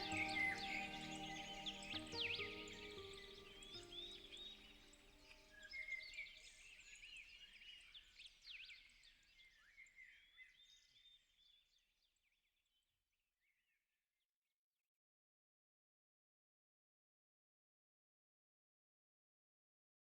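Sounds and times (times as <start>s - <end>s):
songbirds chirping and whistling: 0.0s - 4.8s
soft background music: 0.0s - 5.3s.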